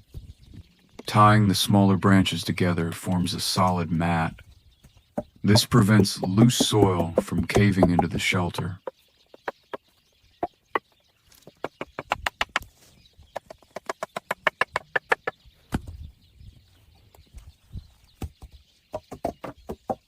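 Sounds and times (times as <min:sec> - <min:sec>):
dull thumps: 0:05.1 - 0:09.6.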